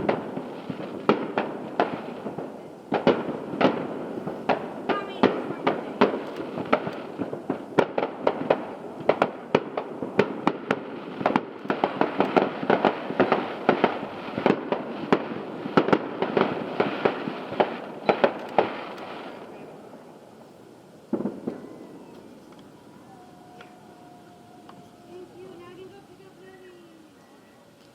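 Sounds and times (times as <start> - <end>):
fireworks bangs: 0.0 - 27.2
fireworks crackling: 0.0 - 27.9.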